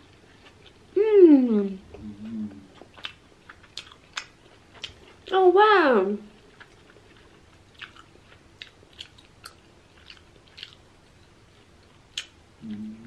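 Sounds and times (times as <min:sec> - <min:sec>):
person humming: 0:01.0 - 0:02.7, 0:12.6 - 0:13.0
wet mouth chewing clicks: 0:02.7 - 0:05.0.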